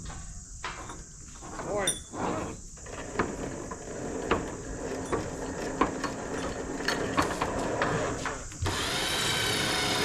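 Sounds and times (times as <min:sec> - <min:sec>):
winch motor whine: 0:08.6 - 0:10.0.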